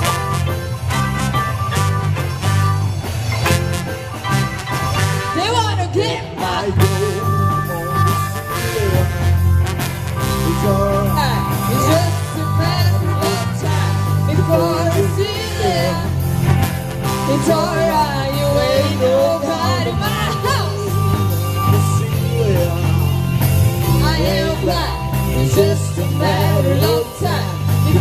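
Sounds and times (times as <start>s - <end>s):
bass guitar notes: 0.0s - 28.0s
drums: 0.0s - 28.0s
person singing: 17.2s - 23.0s, 23.9s - 28.0s.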